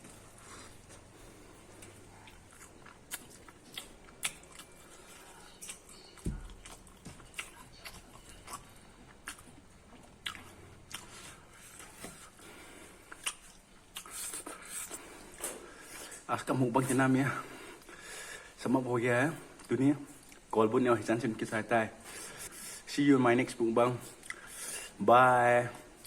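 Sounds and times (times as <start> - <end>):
person chewing corn: 0.0 - 17.0, 19.4 - 20.6, 24.0 - 25.0.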